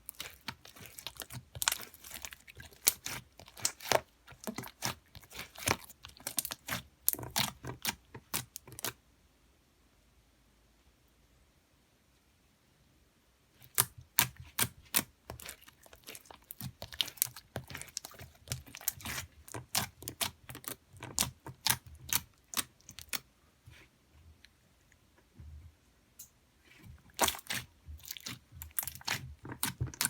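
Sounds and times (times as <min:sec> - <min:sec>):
slime squishing with clicks and pops: 0:00.0 - 0:09.0, 0:13.6 - 0:23.3, 0:27.1 - 0:30.0.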